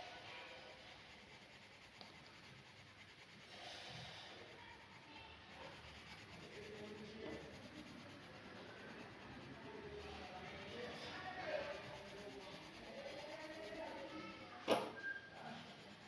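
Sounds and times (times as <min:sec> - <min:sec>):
pen scratching on paper: 0:04.4 - 0:14.0.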